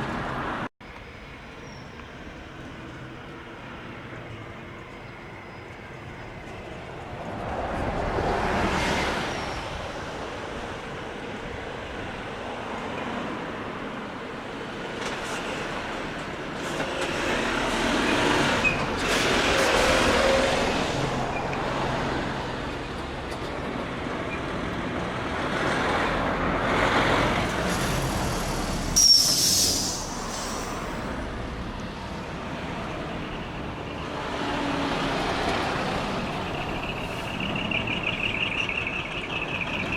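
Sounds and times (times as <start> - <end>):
heavy trucks driving past: 1.3 - 12.6, 13.2 - 39.9
short loud hiss: 28.3 - 31.1.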